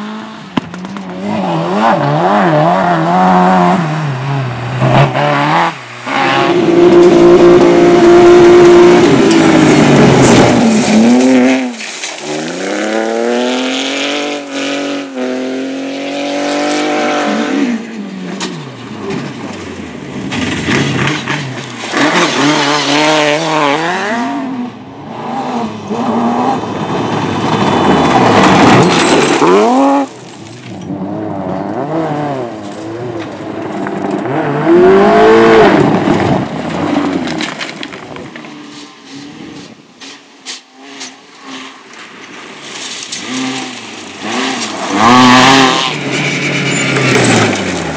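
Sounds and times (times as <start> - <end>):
rally car engines revving: 0.0 - 47.9.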